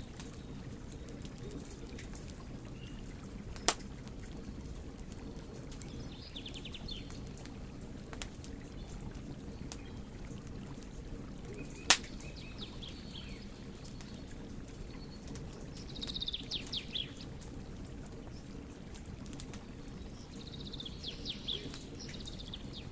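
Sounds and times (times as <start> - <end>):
wood fire crackling: 0.0 - 22.9
birds chirping: 11.4 - 17.3, 19.8 - 22.9.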